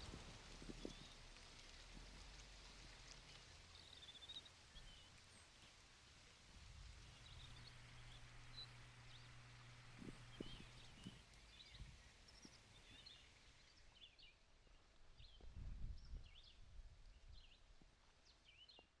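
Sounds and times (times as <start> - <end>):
soft steady hiss: 0.0 - 19.0
faint bird chirps: 7.1 - 17.7.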